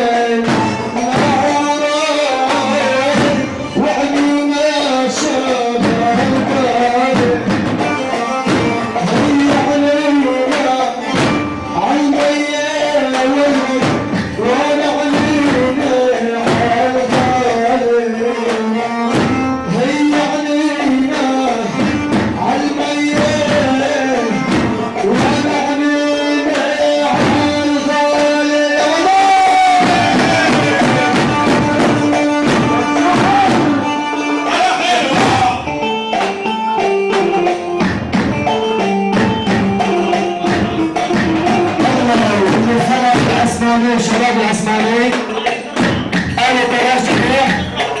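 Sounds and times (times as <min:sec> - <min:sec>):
person singing: 0:00.0 - 0:37.8, 0:38.5 - 0:48.0
drum beat: 0:00.0 - 0:48.0
melodic instrument bending notes: 0:29.8 - 0:43.8.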